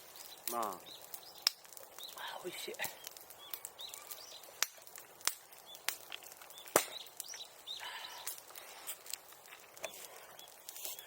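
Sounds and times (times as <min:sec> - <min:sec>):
bonfire crackling and popping: 0:00.0 - 0:11.0
faint high bird chirps: 0:03.0 - 0:04.6.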